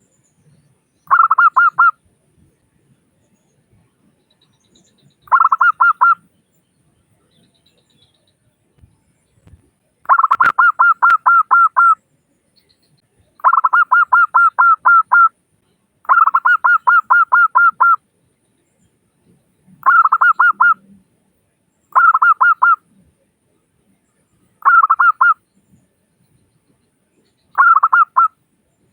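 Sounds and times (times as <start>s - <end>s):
dove cooing: 1.1s - 1.9s, 5.3s - 6.2s, 10.1s - 12.0s, 13.4s - 15.3s, 16.1s - 18.0s, 19.8s - 20.8s, 22.0s - 22.8s, 24.6s - 25.4s, 27.6s - 28.3s.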